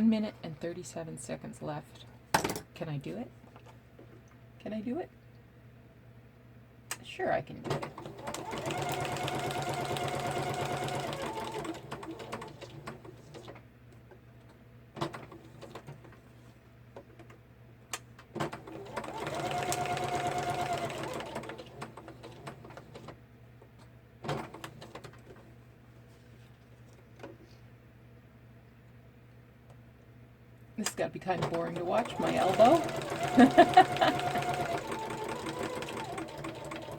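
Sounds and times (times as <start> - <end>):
sewing machine stitching: 7.6 - 13.6, 18.4 - 23.2, 24.2 - 25.4, 31.2 - 36.9.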